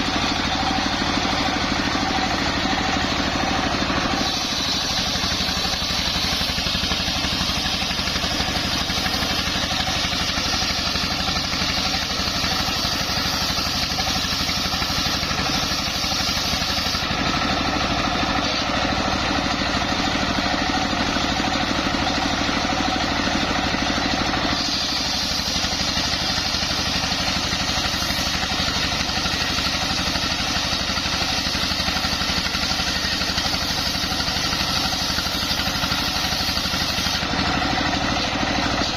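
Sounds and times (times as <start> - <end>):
circular saw machine running: 0.0 - 38.9.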